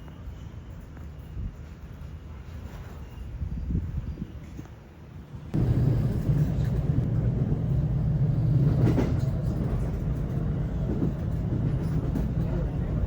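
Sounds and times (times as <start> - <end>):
vehicle rumble: 5.5 - 13.0.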